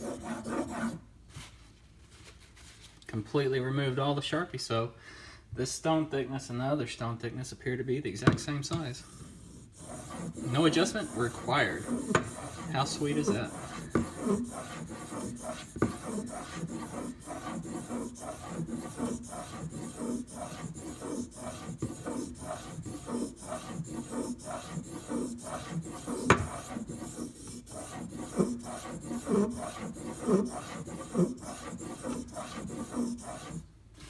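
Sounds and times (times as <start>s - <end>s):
knife rasping on sharpening stone: 9.1s - 33.6s.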